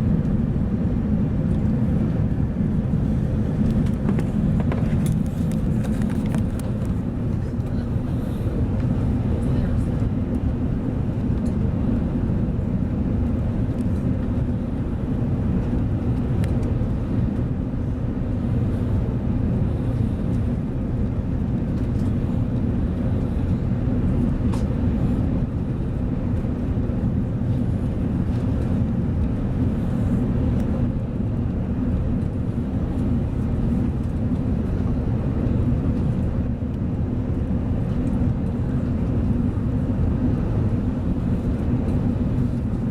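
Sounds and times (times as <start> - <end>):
airliner cabin rumble: 0.0 - 42.9.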